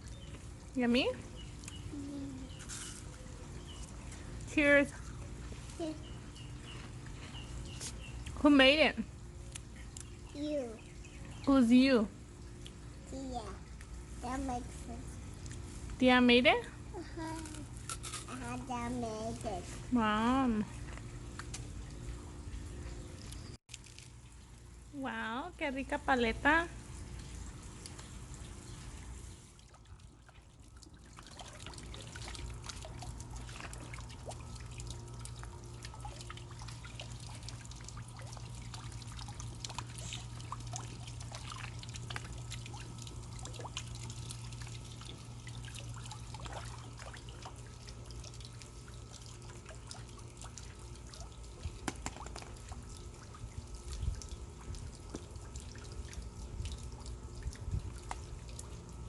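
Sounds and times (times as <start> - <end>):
water trickling and dripping: 0.0 - 16.0, 16.9 - 59.0
steady low hum: 0.0 - 59.0.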